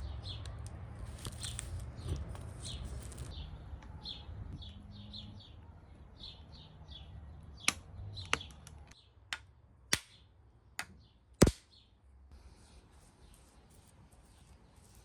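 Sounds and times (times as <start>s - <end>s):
bird chirping: 0.0s - 0.6s, 1.2s - 9.3s.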